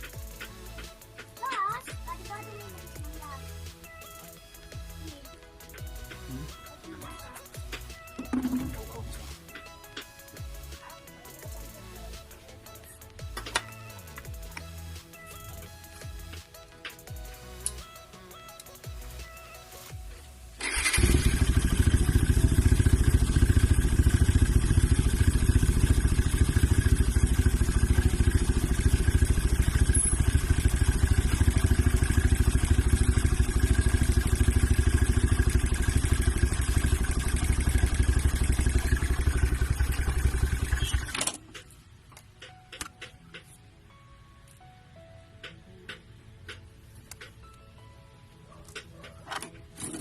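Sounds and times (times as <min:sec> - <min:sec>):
motorcycle engine running: 0:05.6 - 0:12.2, 0:20.6 - 0:41.6.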